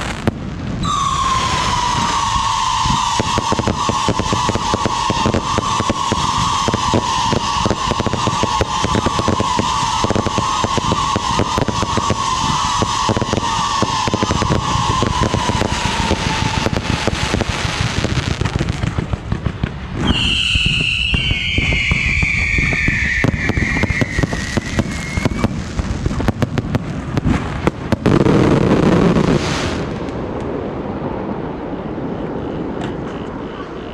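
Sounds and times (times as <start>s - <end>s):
fireworks crackling: 0.0s - 31.4s
deep firework burst: 0.0s - 32.8s
whistling shells: 0.8s - 17.4s, 20.0s - 25.8s.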